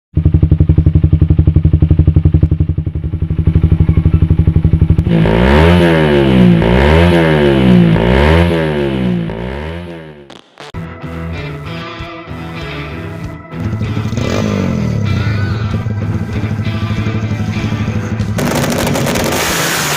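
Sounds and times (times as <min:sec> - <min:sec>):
motorcycle engine idling and revving: 0:00.1 - 0:10.8, 0:13.4 - 0:19.9.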